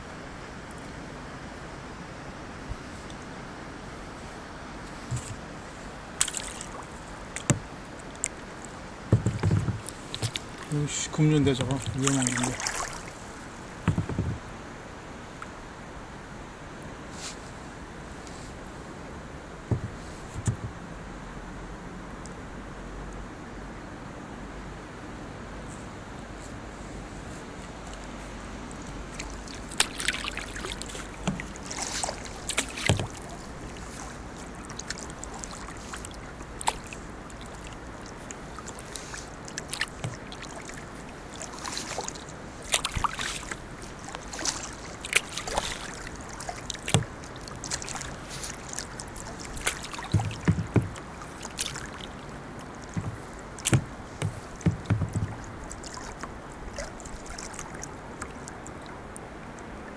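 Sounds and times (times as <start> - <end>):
flowing water rushing: 0.0 - 22.2, 28.0 - 59.9
paddle splashing in water: 4.9 - 14.6, 28.8 - 59.3.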